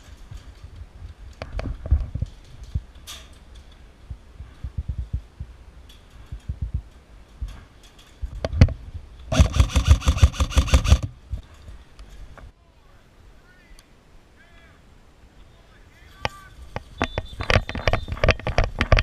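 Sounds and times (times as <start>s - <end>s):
low thuds: 4.0s - 9.8s
airsoft rifle full-auto burst: 9.3s - 11.1s.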